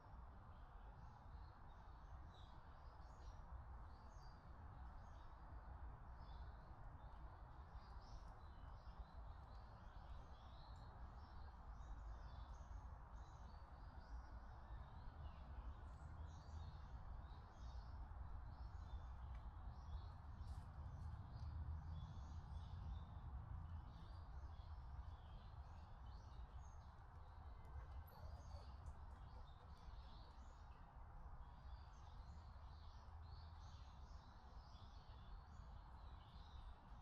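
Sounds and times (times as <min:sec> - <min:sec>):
background hiss and rumble: 0:00.0 - 0:37.0
small birds chirping: 0:07.8 - 0:37.0.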